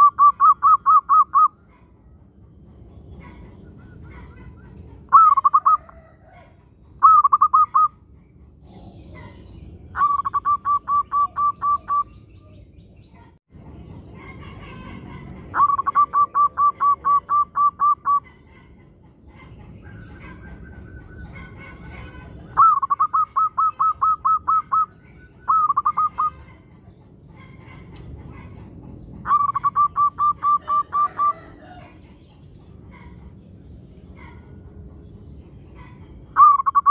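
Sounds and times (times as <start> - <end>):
dove cooing rapidly: 0.0 - 1.6, 3.2 - 7.9, 9.9 - 12.1, 14.3 - 26.9, 27.5 - 32.3.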